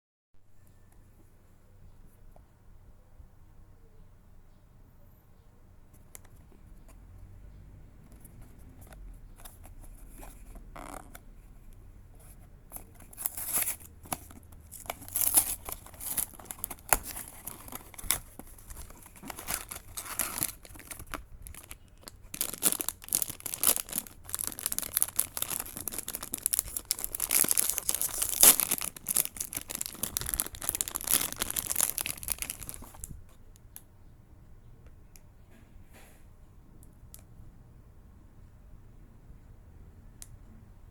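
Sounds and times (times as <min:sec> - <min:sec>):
packaging tearing and crinkling: 0:12.8 - 0:33.2
hands fumbling with packaging: 0:12.9 - 0:33.2.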